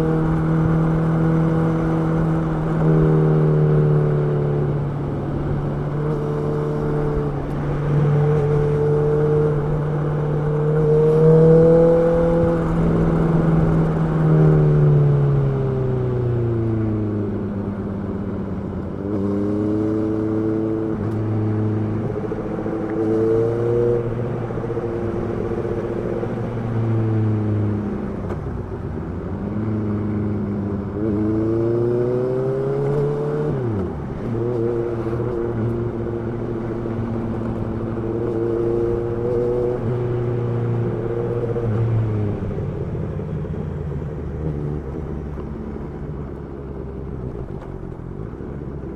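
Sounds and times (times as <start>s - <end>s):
motorcycle engine revving: 29.4s - 47.8s.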